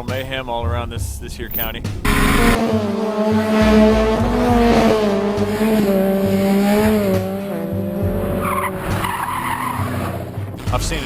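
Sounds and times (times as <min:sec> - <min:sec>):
vehicle engine at high revs: 0:00.0 - 0:11.0.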